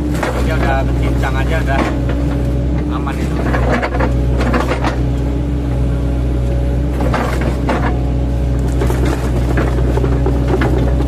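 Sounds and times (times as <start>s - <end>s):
diesel engine running: 0.0s - 11.0s
wood cracking and knocking: 8.6s - 11.0s.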